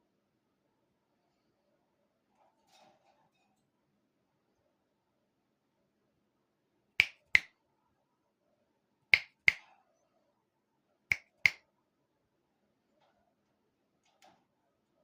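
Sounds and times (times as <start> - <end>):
fingers snapping: 7.0 - 7.5, 9.2 - 9.6, 11.1 - 11.6.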